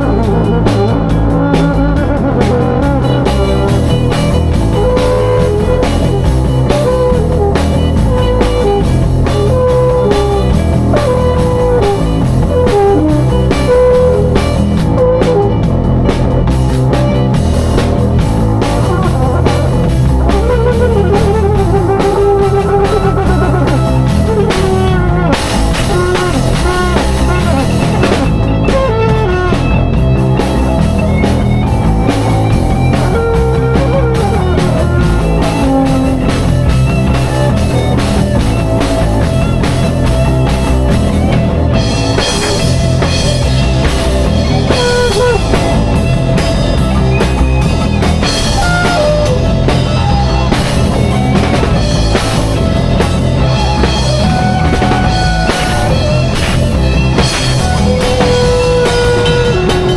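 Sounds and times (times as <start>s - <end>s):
drum kit beat: 0.0s - 59.9s
electric guitar lines: 0.0s - 59.9s.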